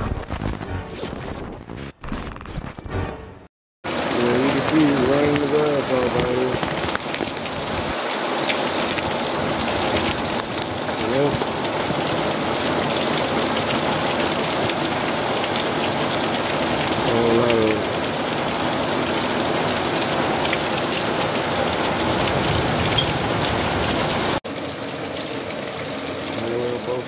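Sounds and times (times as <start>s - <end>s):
heavy rain pouring: 3.9s - 27.0s
person calling out: 17.1s - 18.0s.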